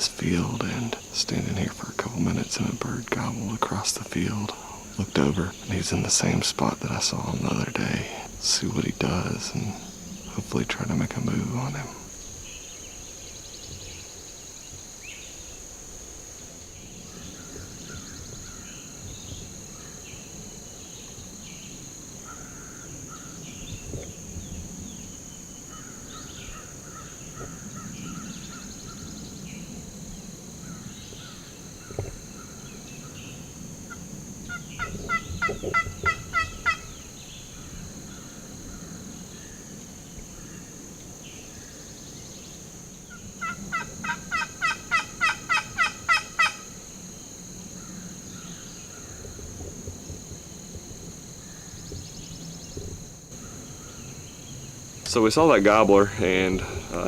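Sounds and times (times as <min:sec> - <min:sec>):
faint songbird chirps: 0:00.0 - 0:15.8, 0:16.4 - 0:46.6, 0:51.4 - 0:57.0
high insect drone: 0:00.0 - 0:57.0
turkey gobbling: 0:33.9 - 0:37.0, 0:43.4 - 0:46.7.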